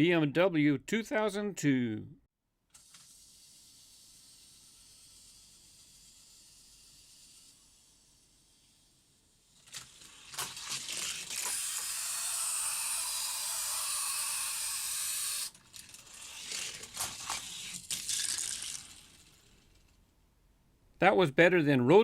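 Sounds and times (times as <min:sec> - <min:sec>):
toy car clacking and knocking: 0:02.7 - 0:08.8, 0:09.4 - 0:20.0
toy car wheels rolling on track: 0:02.7 - 0:20.1.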